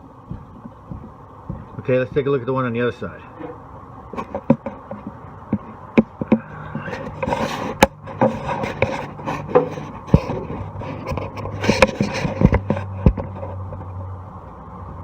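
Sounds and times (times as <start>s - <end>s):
low hum: 0.0s - 2.5s
metal scraping: 3.3s - 13.7s.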